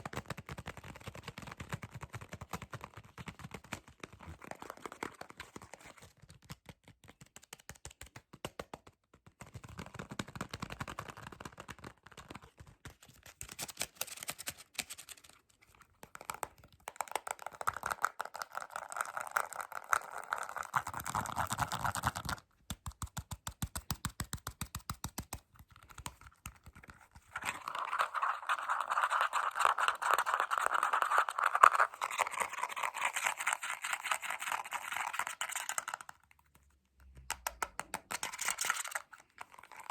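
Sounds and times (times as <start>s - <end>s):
rapid tapping and scratching: 0.0s - 15.3s, 16.0s - 36.2s, 37.3s - 39.9s.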